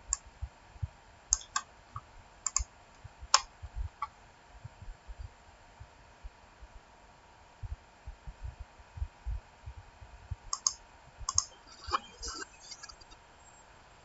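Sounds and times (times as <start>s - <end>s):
sharp clicks: 1.4s - 1.7s, 2.5s - 2.7s, 10.5s - 13.2s
soft low thumps: 3.0s - 6.8s, 7.5s - 11.4s.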